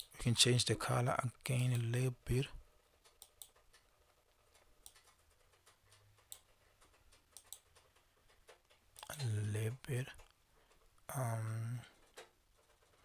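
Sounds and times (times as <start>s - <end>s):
computer keys and mouse clicking: 4.6s - 9.4s.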